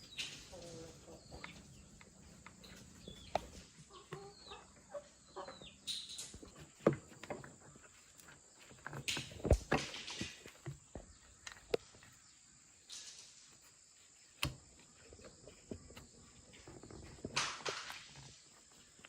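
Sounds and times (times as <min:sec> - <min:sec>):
chicks chirping: 0:00.0 - 0:06.6.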